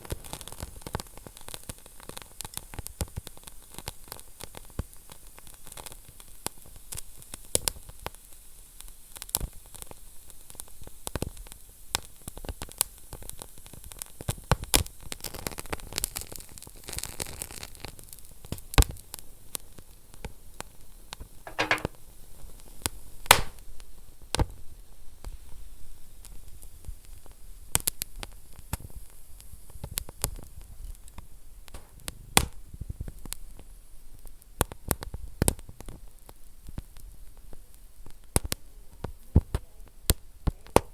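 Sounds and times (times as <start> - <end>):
wood fire crackling: 23.3 - 23.7, 26.6 - 40.9.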